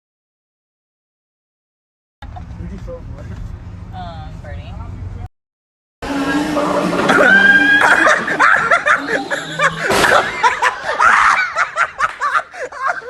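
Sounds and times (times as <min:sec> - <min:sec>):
group of people laughing: 0:06.9 - 0:13.0.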